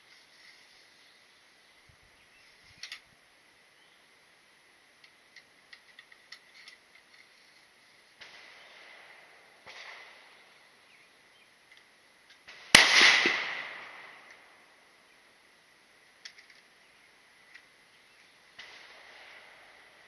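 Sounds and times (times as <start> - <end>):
gunshot with echo: 12.7 - 14.2.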